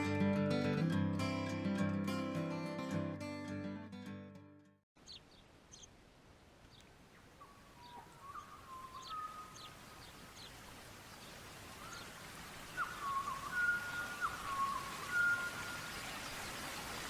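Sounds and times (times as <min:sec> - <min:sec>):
birds chirping and whistling: 0:07.4 - 0:09.7, 0:12.7 - 0:15.9.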